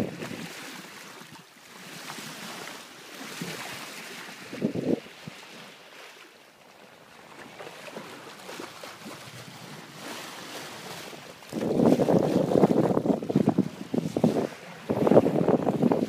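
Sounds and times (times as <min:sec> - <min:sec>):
wind buffeting microphone: 0:04.5 - 0:05.4, 0:10.8 - 0:16.0.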